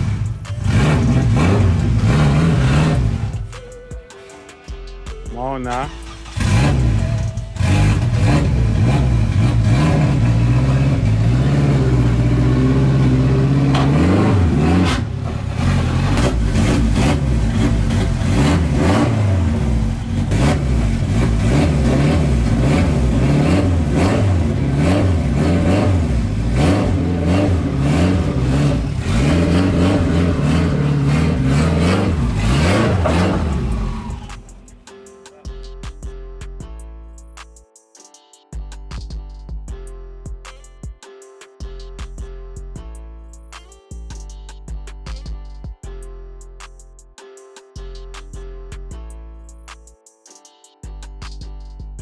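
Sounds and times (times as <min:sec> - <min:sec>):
car engine revving: 0:00.0 - 0:03.6, 0:06.0 - 0:34.8.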